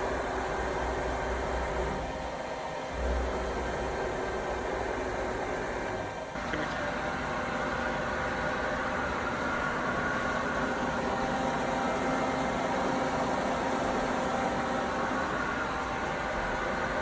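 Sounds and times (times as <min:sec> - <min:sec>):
machining center humming: 0:00.0 - 0:17.0.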